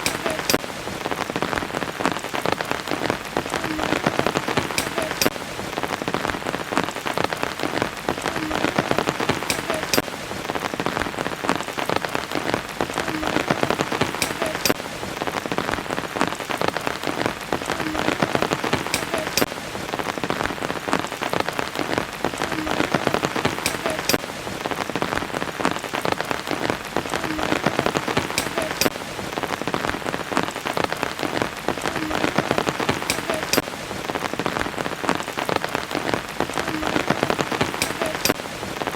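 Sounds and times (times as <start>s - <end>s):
sharp drop ticks: 0.0s - 0.7s, 3.7s - 5.4s, 8.4s - 10.1s, 14.0s - 14.8s, 18.1s - 19.5s, 22.8s - 24.2s, 28.2s - 29.0s, 32.8s - 33.7s, 36.8s - 38.4s
rain pattering: 0.0s - 38.9s.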